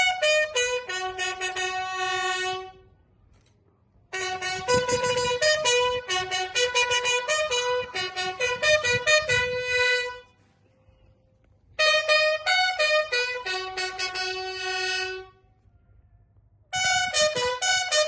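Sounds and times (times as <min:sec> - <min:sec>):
bugle call on brass instrument: 0:00.0 - 0:02.8, 0:04.1 - 0:10.3, 0:11.8 - 0:15.4, 0:16.7 - 0:18.0.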